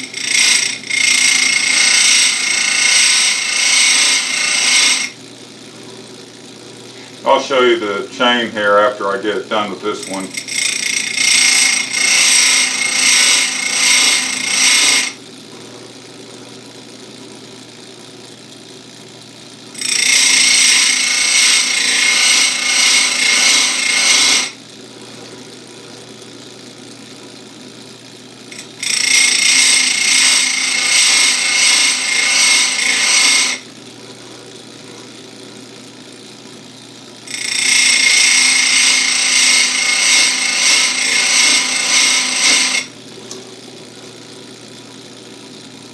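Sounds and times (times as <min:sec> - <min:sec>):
grinding wheel on chain cutters: 0:00.0 - 0:05.2, 0:07.2 - 0:15.2, 0:19.7 - 0:24.6, 0:28.4 - 0:33.7, 0:37.2 - 0:43.0
grinder motor humming: 0:00.0 - 0:45.9.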